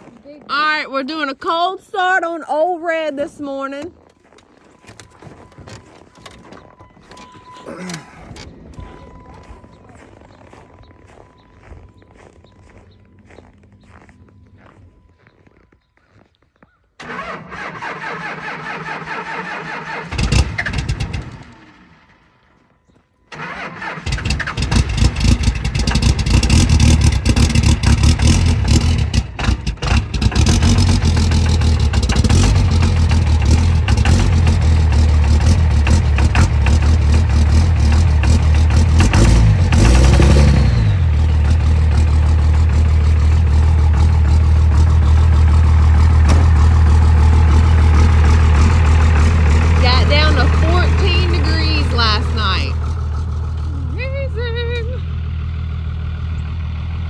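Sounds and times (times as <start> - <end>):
engine cranking: 3.8 - 11.4, 17.0 - 22.6, 23.2 - 55.4
engine revving: 17.0 - 22.5, 23.3 - 57.0
pickup engine idling rough: 23.4 - 57.0.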